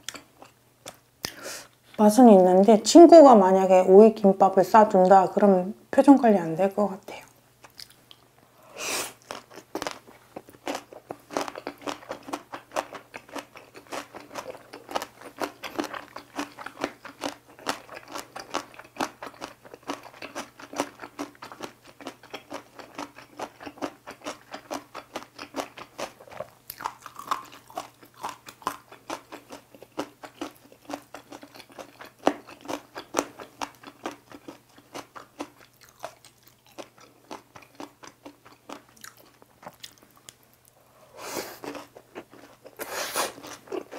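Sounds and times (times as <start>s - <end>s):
crunchy chewing: 9.0s - 40.8s, 41.4s - 43.9s.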